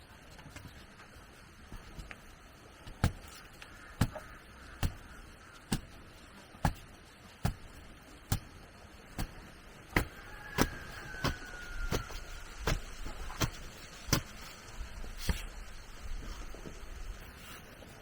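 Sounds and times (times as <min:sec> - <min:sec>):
hand tool striking wood: 0:02.8 - 0:03.4, 0:04.0 - 0:05.1, 0:05.7 - 0:06.0, 0:06.6 - 0:14.5.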